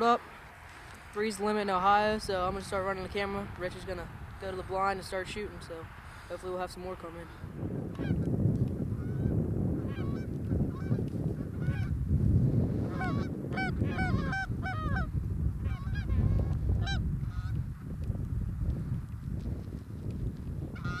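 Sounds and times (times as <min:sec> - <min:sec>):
geese honking: 0:12.9 - 0:15.1, 0:20.8 - 0:21.0.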